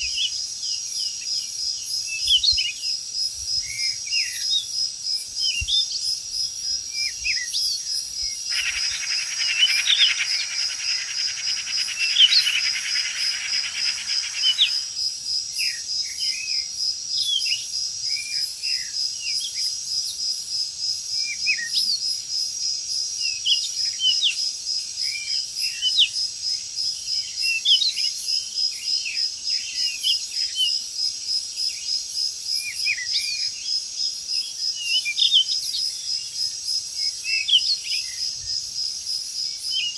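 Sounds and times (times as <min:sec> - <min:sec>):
insect chorus: 0:00.0 - 0:39.9
bird chirps: 0:08.5 - 0:15.0.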